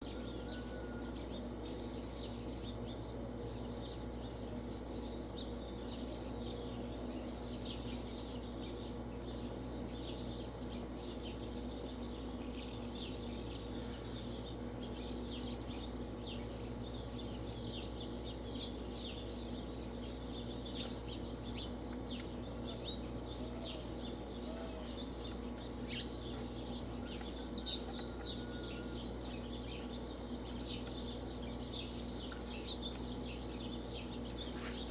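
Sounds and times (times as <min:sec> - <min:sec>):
steady low hum: 0:00.0 - 0:34.9
quail clucking: 0:21.9 - 0:31.2.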